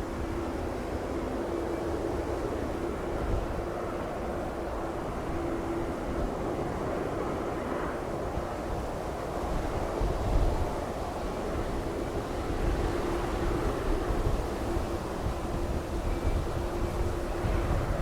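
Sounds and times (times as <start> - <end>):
gusty wind buffeting microphone: 2.8 - 18.0.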